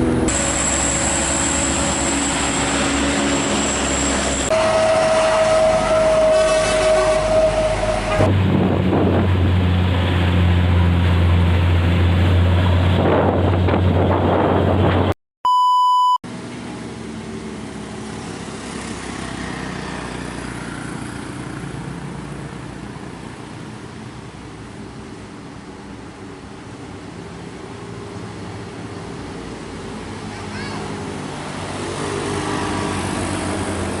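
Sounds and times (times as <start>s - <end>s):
diesel bus engine droning: 0.0s - 15.1s
road traffic: 0.0s - 15.2s, 16.2s - 34.0s
wind noise: 8.1s - 10.0s, 12.1s - 15.1s
short electronic beep: 15.5s - 16.2s.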